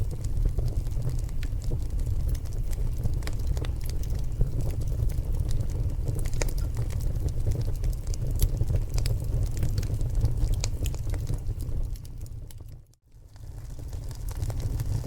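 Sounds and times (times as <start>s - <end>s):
logs crackling and popping: 0.0s - 15.0s
fire low roar: 13.2s - 15.0s.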